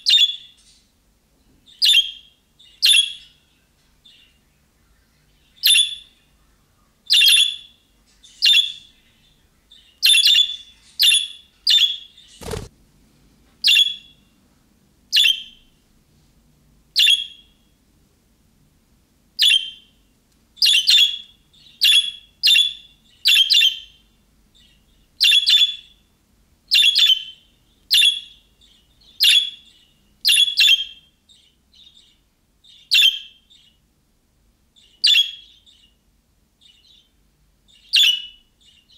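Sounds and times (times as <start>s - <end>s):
budgerigar chirping: 0.0s - 0.5s, 1.7s - 3.4s, 5.6s - 6.2s, 7.1s - 7.8s, 8.4s - 8.9s, 9.7s - 12.6s, 17.0s - 17.5s, 20.6s - 24.0s, 24.6s - 26.0s, 26.7s - 33.7s, 34.8s - 36.0s, 37.7s - 38.9s.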